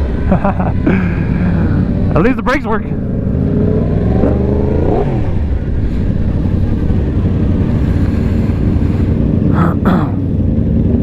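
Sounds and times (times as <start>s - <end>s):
sport bike engine running: 0.0s - 11.0s.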